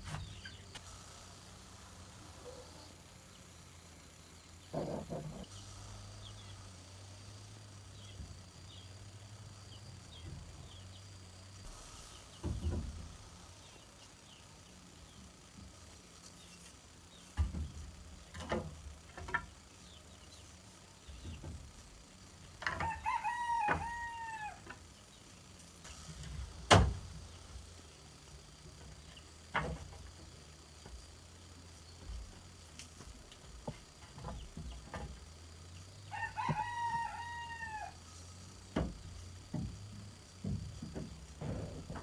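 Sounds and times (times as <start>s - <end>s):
rooster crowing: 22.6s - 24.8s, 36.0s - 38.1s.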